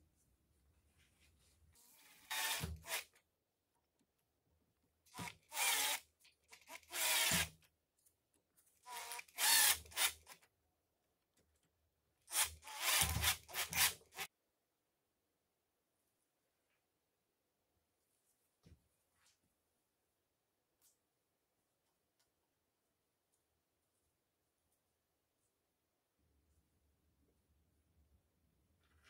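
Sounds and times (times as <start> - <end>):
cordless drill bursts: 2.0 - 3.1, 5.2 - 6.0, 6.7 - 7.5, 8.9 - 10.3, 12.3 - 14.3.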